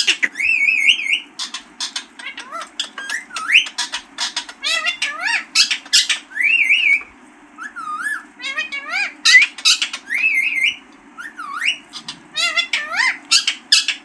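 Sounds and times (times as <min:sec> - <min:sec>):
parakeet squawking and whistling: 0:00.0 - 0:01.5.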